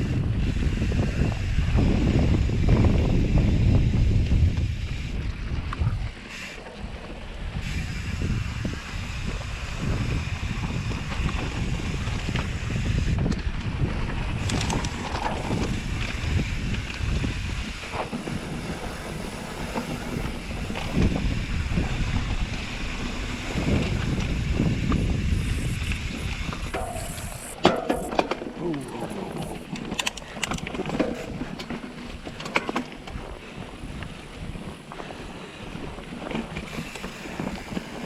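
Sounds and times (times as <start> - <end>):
bike rolling on dirt trail: 0.0 - 38.0
wind buffeting microphone: 0.0 - 38.0
bike clicks and knocks: 10.2 - 34.2, 34.9 - 38.0.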